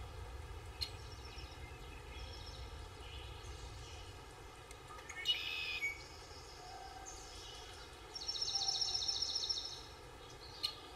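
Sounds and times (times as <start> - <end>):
steady low rumble: 0.0 - 4.6
birds chirping: 0.0 - 10.9.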